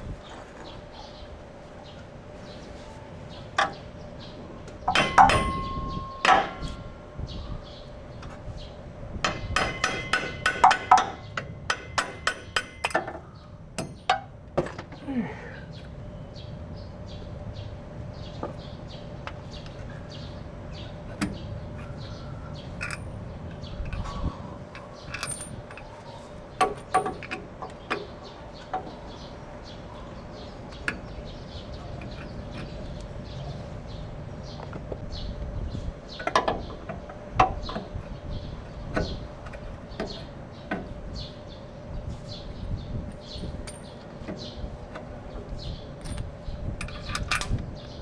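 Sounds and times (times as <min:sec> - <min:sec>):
hammer striking metal: 0:04.9 - 0:06.9, 0:09.2 - 0:13.1
metal tools clinking: 0:24.7 - 0:28.8, 0:43.3 - 0:44.1.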